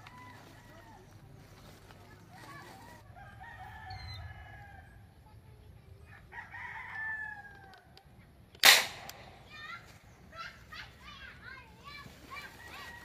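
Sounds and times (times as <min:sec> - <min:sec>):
rooster crowing: 0:03.1 - 0:05.0, 0:06.3 - 0:07.7
rifle shot: 0:08.6 - 0:09.5.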